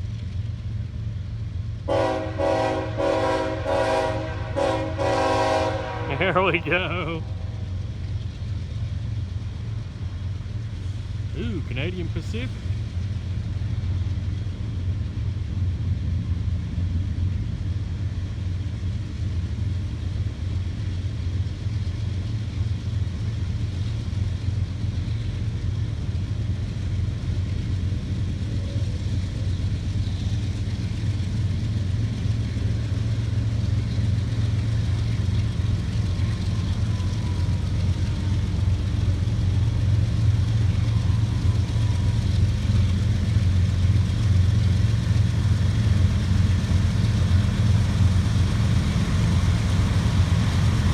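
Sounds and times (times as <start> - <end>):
freight train rumbling past: 0.0 - 50.9.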